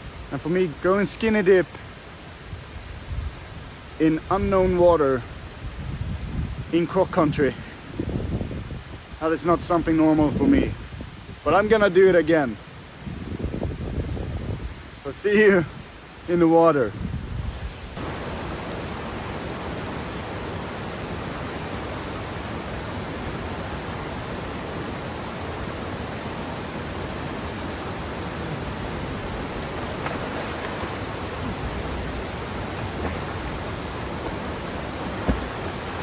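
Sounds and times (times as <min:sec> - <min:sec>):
waterfall roaring: 0:17.9 - 0:36.0.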